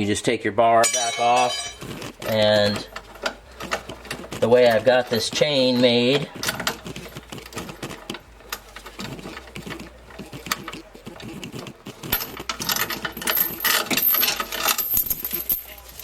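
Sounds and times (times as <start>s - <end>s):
chain clinking and rattling: 0.8s - 16.0s.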